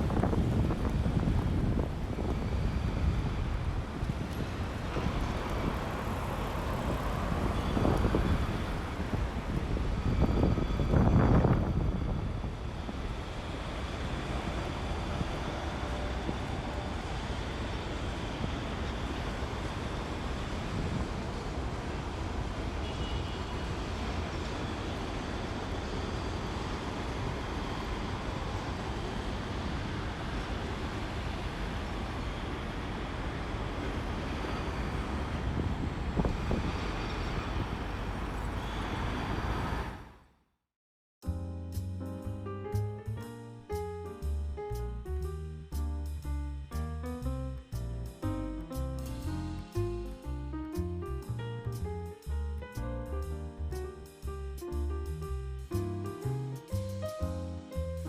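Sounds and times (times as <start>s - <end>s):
wind buffeting microphone: 0.0s - 22.6s, 27.1s - 40.1s.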